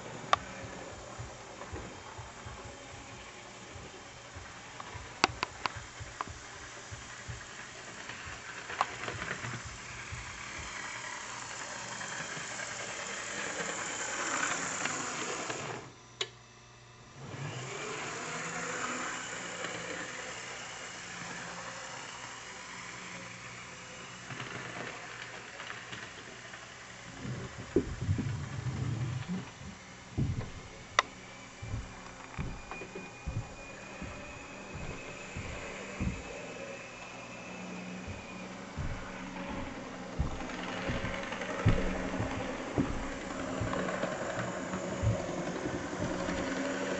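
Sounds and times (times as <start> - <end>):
model train motor whirring: 0.0 - 15.9, 17.2 - 46.9
model train clicks: 0.3 - 16.3, 24.2 - 29.4, 40.1 - 46.9.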